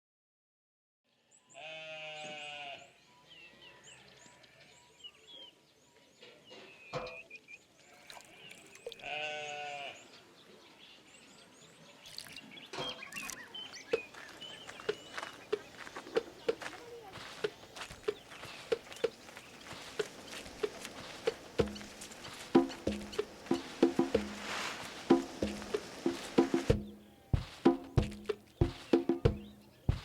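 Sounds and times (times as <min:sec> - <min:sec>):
goat bleating: 0:01.6 - 0:02.9, 0:08.9 - 0:10.0.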